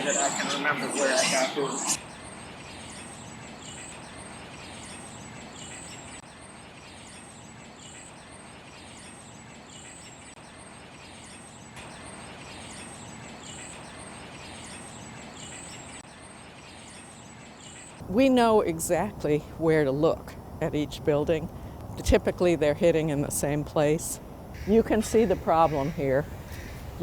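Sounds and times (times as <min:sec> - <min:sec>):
city background noise: 0:00.0 - 0:06.5, 0:18.0 - 0:27.0
small songbirds chirping: 0:02.0 - 0:27.0.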